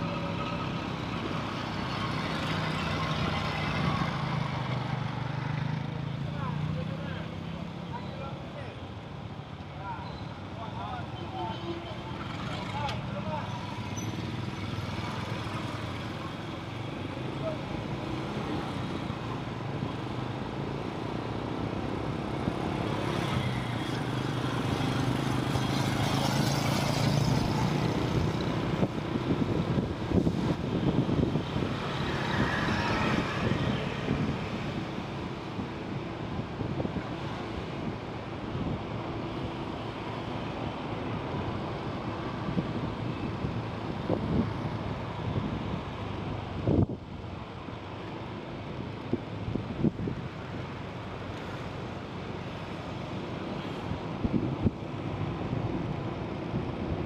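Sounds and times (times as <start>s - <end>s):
wind buffeting microphone: 28.0s - 34.8s.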